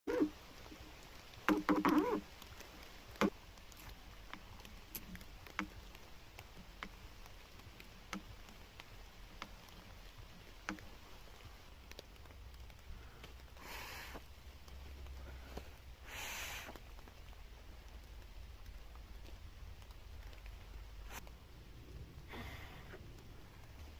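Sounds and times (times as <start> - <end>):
rainwater dripping: 0.1 - 23.9.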